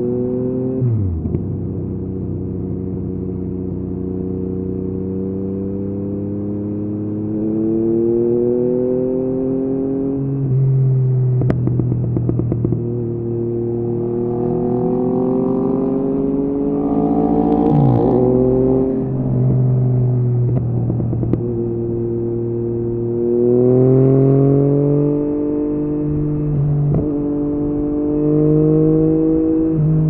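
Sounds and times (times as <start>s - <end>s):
motorcycle engine at low speed: 0.0s - 30.0s
exhaust pops: 11.4s - 12.8s, 20.4s - 21.5s.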